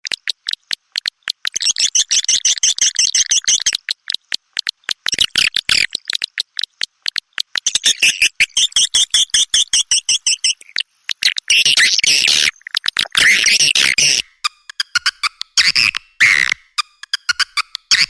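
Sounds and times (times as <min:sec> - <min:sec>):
sharp clicks: 0:00.0 - 0:18.0
high dense twittering: 0:07.6 - 0:18.0.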